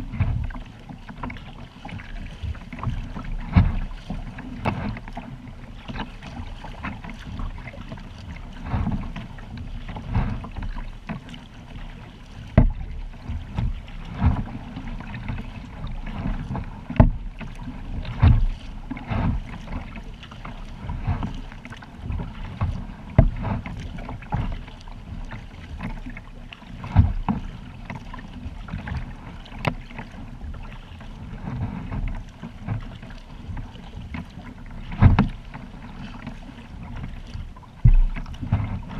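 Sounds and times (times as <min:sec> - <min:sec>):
wind on microphone: 0:00.0 - 0:00.8, 0:11.9 - 0:25.8, 0:30.4 - 0:38.9
water lapping around kayak: 0:00.0 - 0:38.9.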